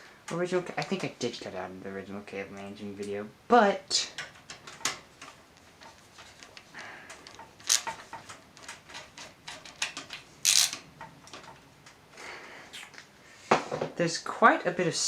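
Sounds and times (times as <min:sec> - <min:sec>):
computer parts clicking and scraping: 0:07.3 - 0:08.0, 0:10.5 - 0:10.8.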